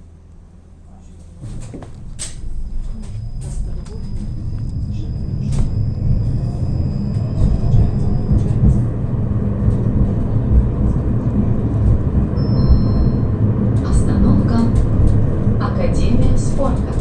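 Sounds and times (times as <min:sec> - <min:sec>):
tram rumbling on rails: 0:00.0 - 0:17.0
short high beeps: 0:12.4 - 0:13.4.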